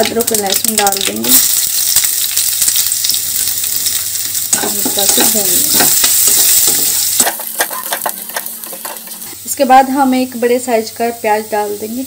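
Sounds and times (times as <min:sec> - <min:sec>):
garlic sizzling in hot oil: 0:00.0 - 0:12.0
spatula scraping a pan: 0:05.1 - 0:09.4.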